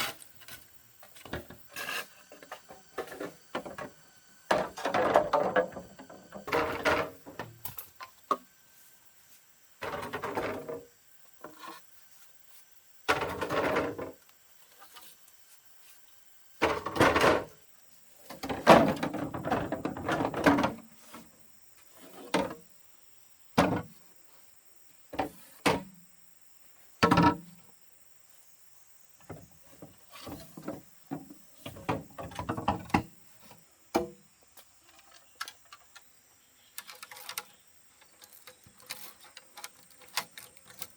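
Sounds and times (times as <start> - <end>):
wood knocking and scraping: 0.4 - 7.6, 29.2 - 34.2.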